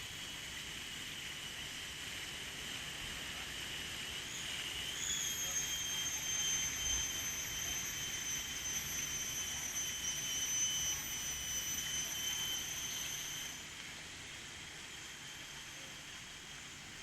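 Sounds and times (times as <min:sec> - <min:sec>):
high-pitched whine: 0:04.2 - 0:13.7.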